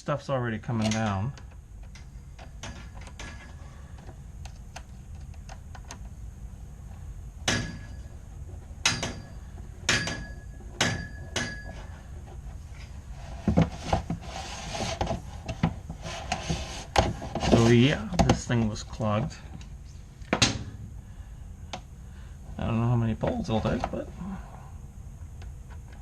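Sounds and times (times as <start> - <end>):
sharp metallic knocks: 7.4 - 8.0, 8.8 - 11.8
brush scraping in vent duct: 11.7 - 18.1.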